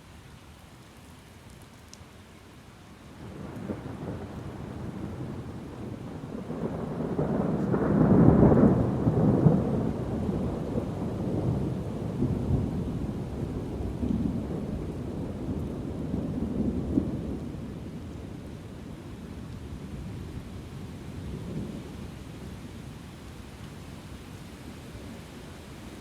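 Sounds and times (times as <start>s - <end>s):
steady rain: 0.0s - 26.0s
rolling thunder: 3.2s - 18.6s.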